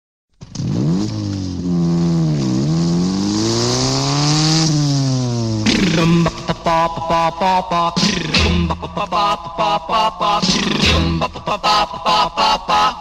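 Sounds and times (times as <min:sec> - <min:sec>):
motorcycle engine revving: 0:00.4 - 0:06.6
band music: 0:05.7 - 0:07.1, 0:08.0 - 0:09.6, 0:10.2 - 0:12.0.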